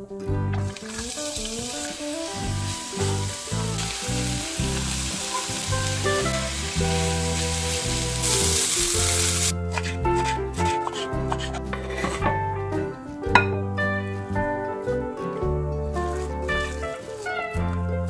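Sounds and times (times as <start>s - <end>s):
onion sizzling in oil: 0.6s - 10.3s.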